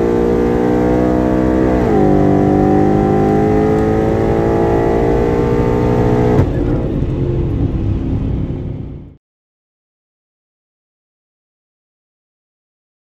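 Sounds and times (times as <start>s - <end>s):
car engine at full throttle: 0.0s - 9.2s.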